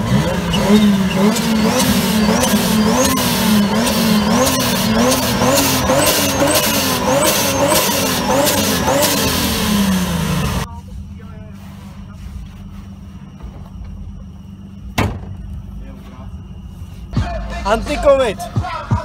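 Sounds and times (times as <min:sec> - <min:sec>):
car engine revving in blips: 0:00.0 - 0:10.7
high rising whistle: 0:01.1 - 0:10.0.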